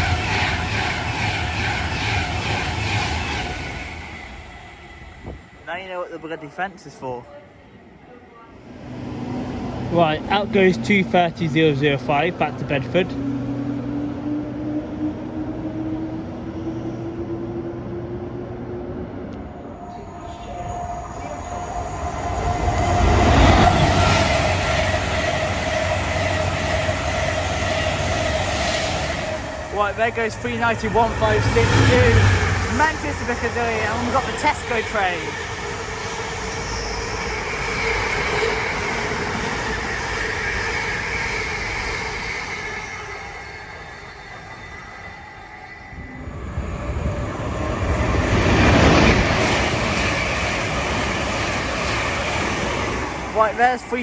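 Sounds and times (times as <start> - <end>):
train rumbling on rails: 0.0 - 54.0
steady whine: 19.3 - 54.0.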